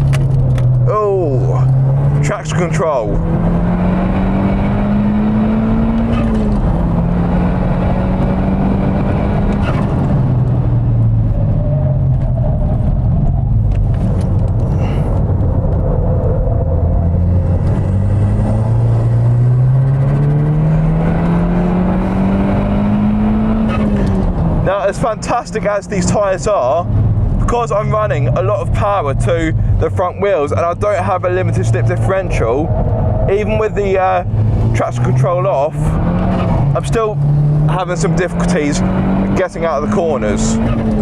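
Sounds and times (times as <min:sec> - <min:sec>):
car engine revving: 0:00.0 - 0:41.0
tyre and wind noise: 0:03.2 - 0:24.7, 0:31.5 - 0:35.2.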